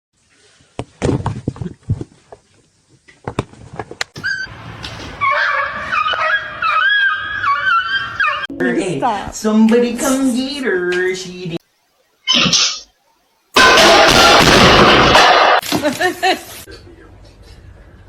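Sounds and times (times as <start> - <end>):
knocks and thumps: 0.8 - 2.4.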